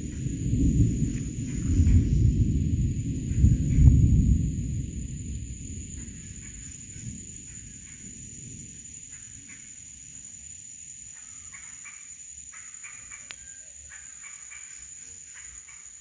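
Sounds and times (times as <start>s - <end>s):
high-pitched insect drone: 4.9s - 16.0s.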